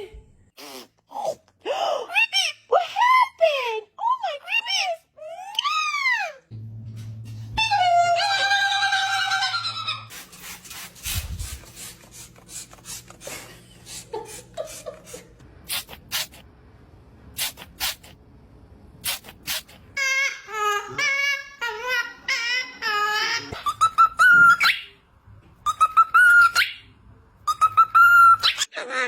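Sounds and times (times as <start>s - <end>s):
parrot vocalising: 19.3s - 25.0s, 25.6s - 26.9s.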